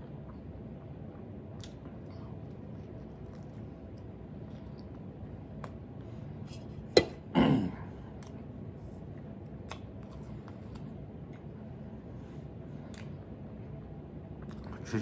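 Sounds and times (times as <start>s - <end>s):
chewing clicks: 9.6s - 11.5s.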